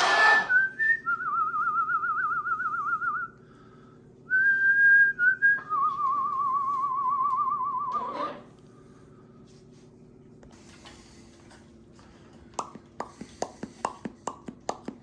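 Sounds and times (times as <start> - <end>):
short noisy rasp: 0.0 - 0.5.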